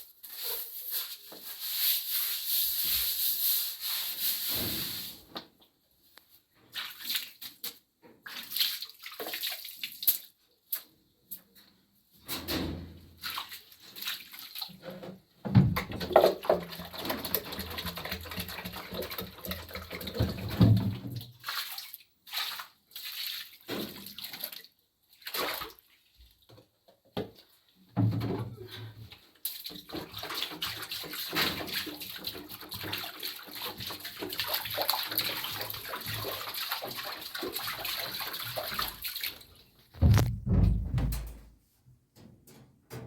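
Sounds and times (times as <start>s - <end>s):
water pouring and splashing: 0.1s - 5.3s, 6.7s - 10.9s, 13.2s - 15.0s, 15.6s - 26.3s, 29.4s - 40.8s.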